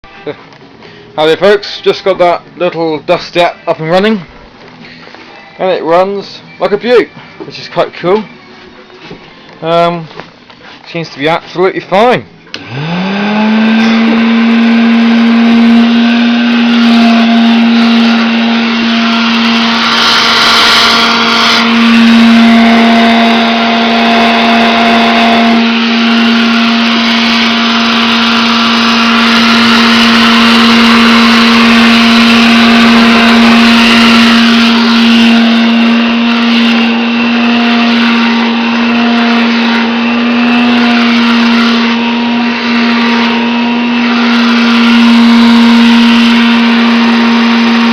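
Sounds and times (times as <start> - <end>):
handheld vacuum cleaner running: 12.6 - 47.9.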